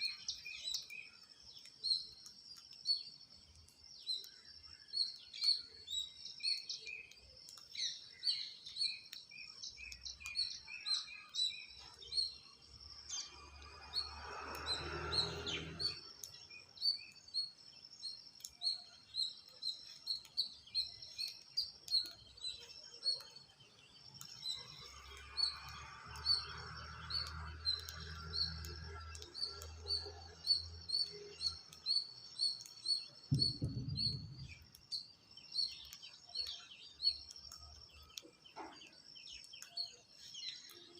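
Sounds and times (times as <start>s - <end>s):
birds chirping: 0.0s - 40.9s
short low thump: 33.3s - 34.7s.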